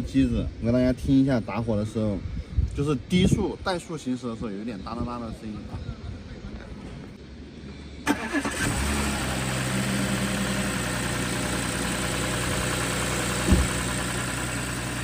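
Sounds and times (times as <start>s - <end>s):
car engine cranking and idling: 8.0s - 15.0s
engine ticking: 8.1s - 15.0s
sharp thump: 13.4s - 13.8s.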